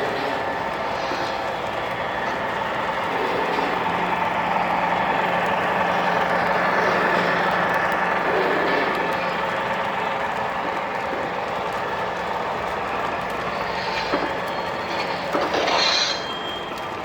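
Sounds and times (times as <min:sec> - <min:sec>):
model train rumbling on track: 0:00.0 - 0:17.0.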